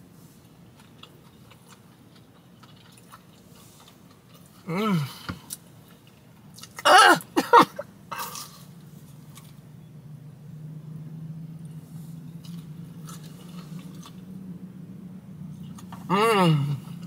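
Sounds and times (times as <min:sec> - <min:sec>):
person chewing: 0:00.7 - 0:07.4, 0:08.1 - 0:09.6, 0:12.1 - 0:14.4
person humming: 0:16.1 - 0:17.0.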